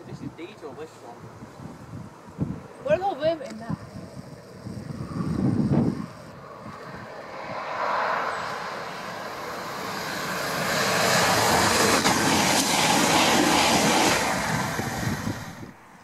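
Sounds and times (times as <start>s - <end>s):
diesel train passing at speed: 5.0s - 16.0s.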